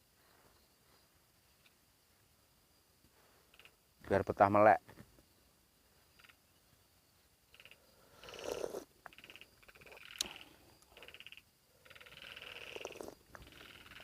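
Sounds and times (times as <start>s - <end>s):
frogs trilling: 3.5s - 3.8s, 6.0s - 14.0s.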